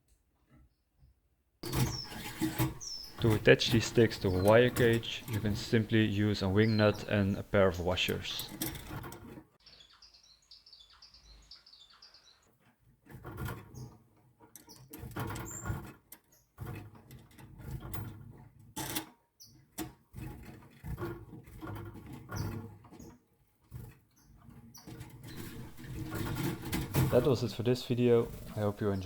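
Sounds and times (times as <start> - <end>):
pet birds chirping: 1.6 - 9.0, 9.6 - 12.5
rustling handling noise: 1.6 - 9.4, 24.9 - 29.0.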